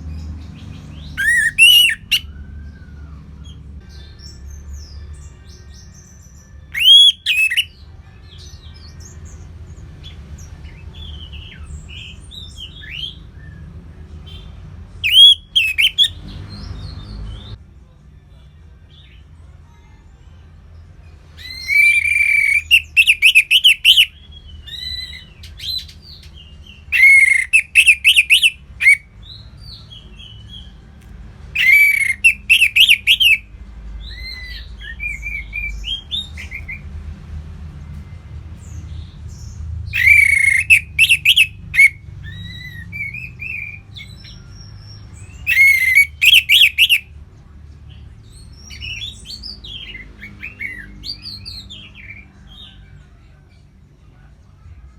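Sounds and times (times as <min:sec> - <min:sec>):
soft bird chirps: 0:00.0 - 0:02.4, 0:03.0 - 0:07.7, 0:11.2 - 0:17.6, 0:21.4 - 0:29.0, 0:31.6 - 0:33.4, 0:38.6 - 0:47.0
thrush singing: 0:00.0 - 0:09.4, 0:10.0 - 0:17.6, 0:21.4 - 0:30.8, 0:31.5 - 0:36.9, 0:39.9 - 0:47.2.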